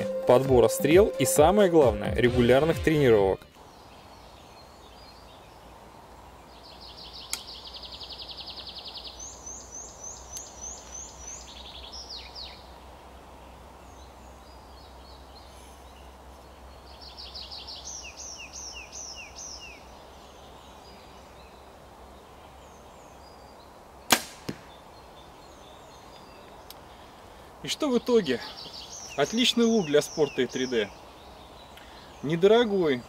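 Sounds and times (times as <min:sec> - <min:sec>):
songbird trilling: 0:28.0 - 0:33.0.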